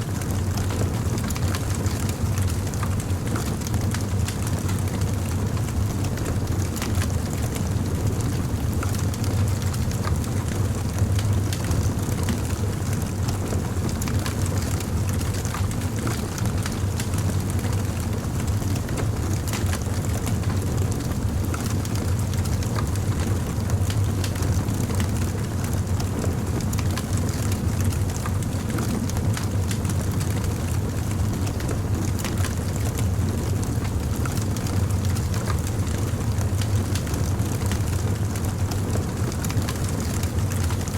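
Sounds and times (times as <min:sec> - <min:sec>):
fire crackling and popping: 0:14.0 - 0:40.9.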